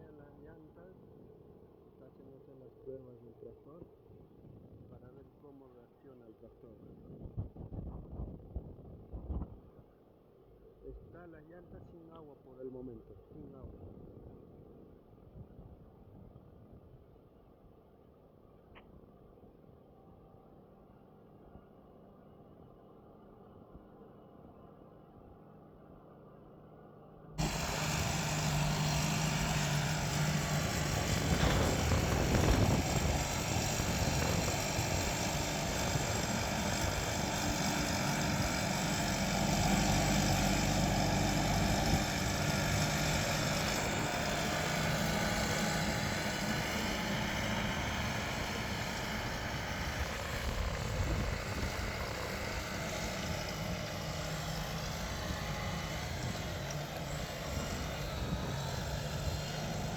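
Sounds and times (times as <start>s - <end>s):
tractor diesel engine under load: 27.4s - 59.9s.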